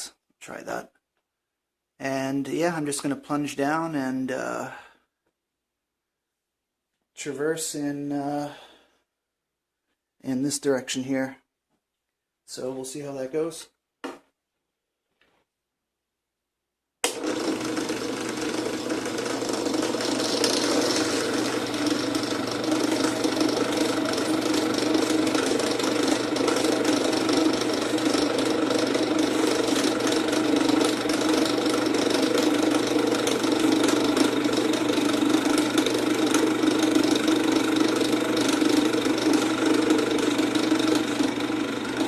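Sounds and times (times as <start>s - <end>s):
drill press milling wood: 17.0s - 42.0s.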